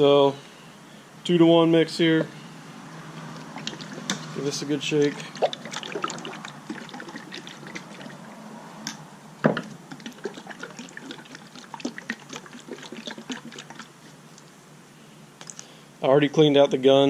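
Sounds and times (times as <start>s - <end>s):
paint sloshing in container: 3.2s - 8.6s, 9.6s - 14.4s.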